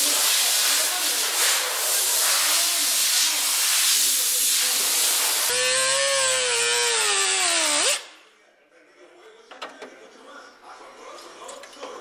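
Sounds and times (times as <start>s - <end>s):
power tool whine: 5.5s - 8.1s.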